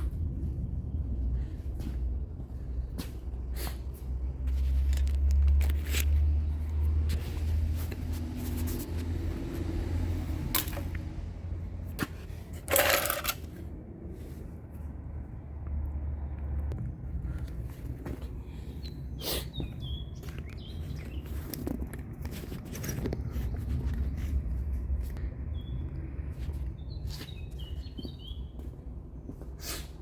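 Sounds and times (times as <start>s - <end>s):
hand tools clicking and clinking: 12.5s - 13.6s.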